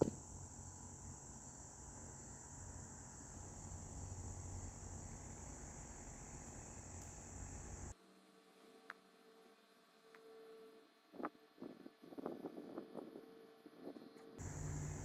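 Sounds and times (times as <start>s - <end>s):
crickets trilling: 0.0s - 7.9s, 14.4s - 15.0s
low hum: 14.4s - 15.0s.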